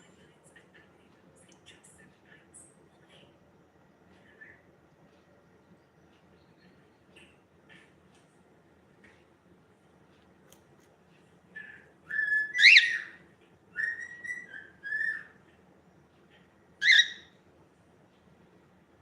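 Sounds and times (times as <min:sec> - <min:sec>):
cockatiel whistling: 0:11.6 - 0:15.4, 0:16.8 - 0:17.3.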